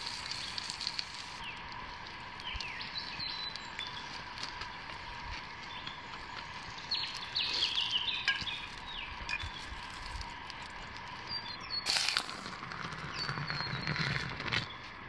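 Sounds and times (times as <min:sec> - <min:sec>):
outdoor background hiss: 0:00.0 - 0:15.0
birds chirping: 0:00.2 - 0:09.8, 0:11.0 - 0:11.9, 0:12.9 - 0:15.0.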